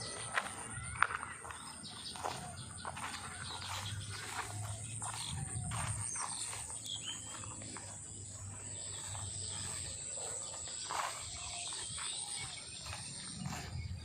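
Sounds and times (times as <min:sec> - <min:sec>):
short chirping calls: 0:00.0 - 0:14.0
high-pitched insect drone: 0:04.3 - 0:14.0.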